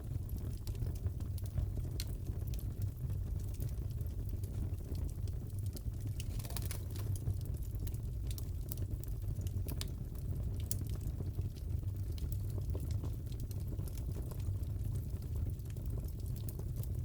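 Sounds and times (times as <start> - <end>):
fire crackling: 0.0 - 17.0
low rumble of flames: 0.0 - 17.0
sharp pops and snaps: 5.8 - 7.8.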